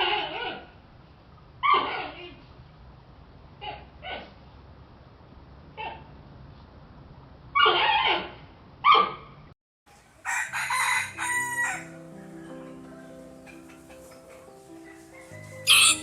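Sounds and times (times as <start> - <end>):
rooster crowing: 10.0 - 12.2, 14.9 - 16.0
short loud animal calls: 15.7 - 16.0.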